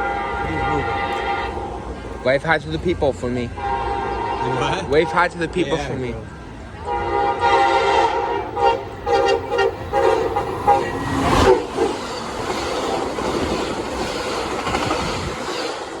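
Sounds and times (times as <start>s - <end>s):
train horn blasts: 0.0s - 2.1s, 3.5s - 5.4s, 6.8s - 11.8s
train passing whoosh and rumble: 0.0s - 16.0s.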